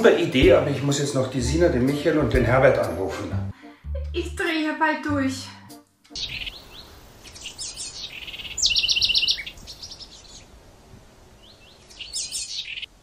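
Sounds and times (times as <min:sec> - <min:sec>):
songbirds chirping: 0:06.1 - 0:13.0
loud fast bird trill: 0:06.2 - 0:10.4, 0:11.4 - 0:12.9.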